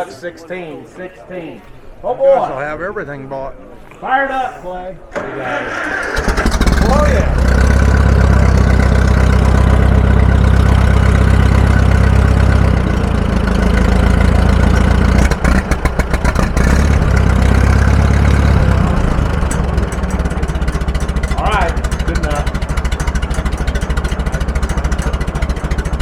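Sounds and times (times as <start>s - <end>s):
engine running loud: 5.9s - 26.0s.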